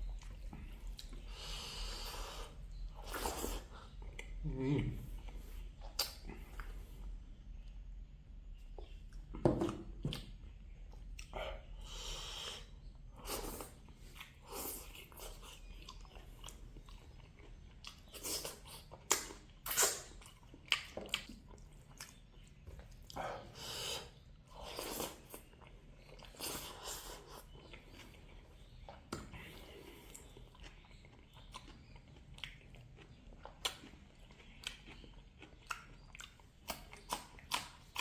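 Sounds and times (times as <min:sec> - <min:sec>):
person chewing crunchy food: 0:08.8 - 0:38.0.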